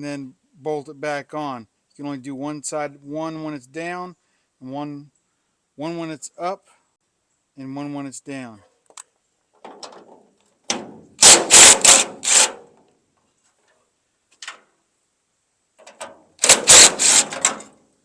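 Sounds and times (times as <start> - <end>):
impact wrench rattling bursts: 11.2 - 12.7, 16.4 - 17.7.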